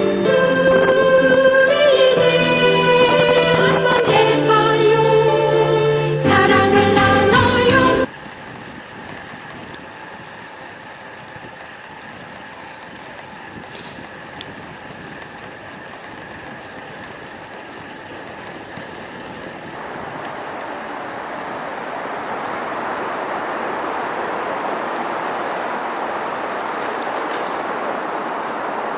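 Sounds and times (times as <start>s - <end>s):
music: 0.0s - 8.1s
wind and tyre noise: 6.6s - 28.9s.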